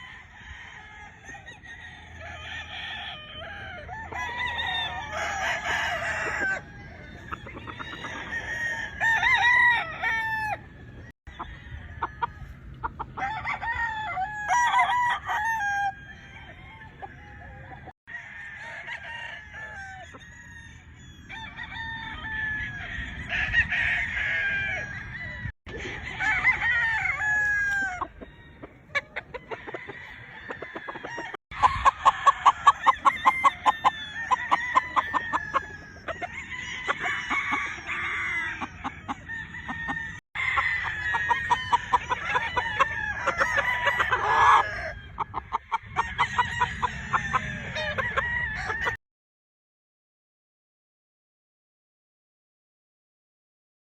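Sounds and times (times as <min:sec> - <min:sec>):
roosters crowing: 0:00.0 - 0:49.0
hens clucking: 0:03.1 - 0:09.1, 0:09.8 - 0:13.4, 0:25.7 - 0:49.0
hen cackling: 0:23.1 - 0:49.0.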